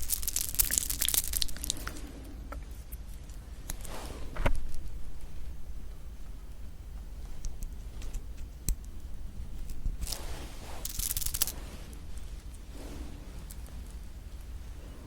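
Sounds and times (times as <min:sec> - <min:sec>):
chewing marshmallow clicks: 0:00.0 - 0:02.0
marshmallow tearing: 0:00.0 - 0:02.0, 0:09.6 - 0:12.4.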